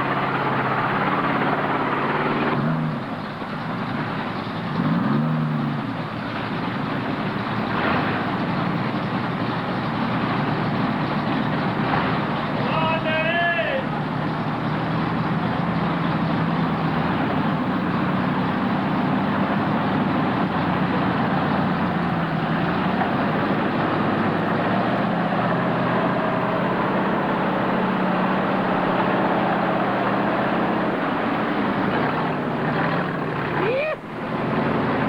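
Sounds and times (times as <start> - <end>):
truck engine running: 0.0 - 35.0.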